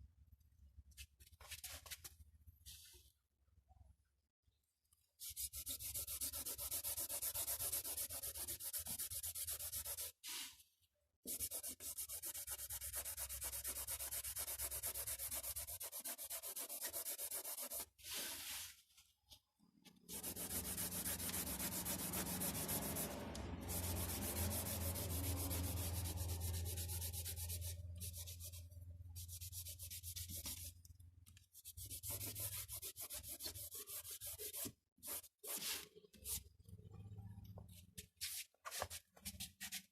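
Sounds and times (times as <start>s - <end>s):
pencil shading on paper: 5.2s - 10.1s, 11.3s - 18.4s, 20.1s - 28.6s, 31.6s - 36.4s.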